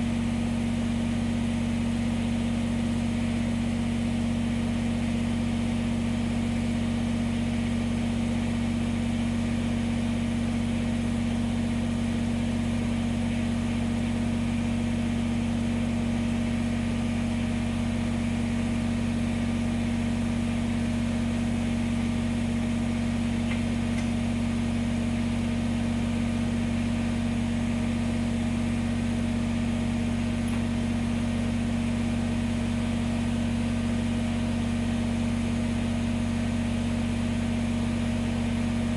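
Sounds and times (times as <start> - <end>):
diesel tractor engine idling: 11.4 - 38.9.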